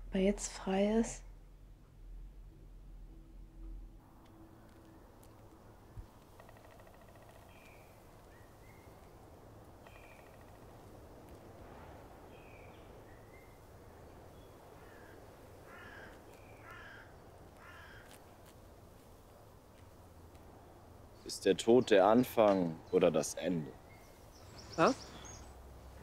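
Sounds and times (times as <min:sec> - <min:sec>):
low background hum: 0:00.0 - 0:26.0
harsh caws: 0:06.4 - 0:07.6, 0:14.8 - 0:18.2
high bird chirps: 0:09.8 - 0:10.9, 0:22.7 - 0:25.6.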